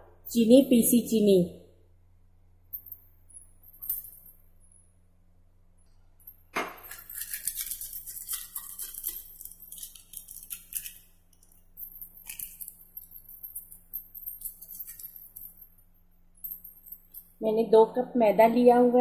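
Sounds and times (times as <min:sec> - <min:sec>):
bangles clinking: 0:02.7 - 0:05.2, 0:05.8 - 0:17.4
plastic packet crinkling: 0:06.9 - 0:11.0.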